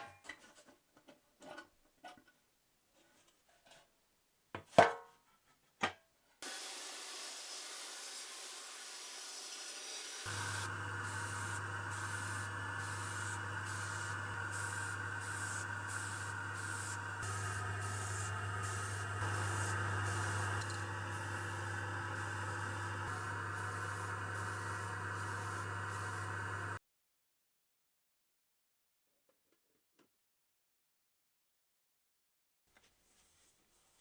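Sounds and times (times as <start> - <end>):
spray paint hiss: 6.4 - 26.8.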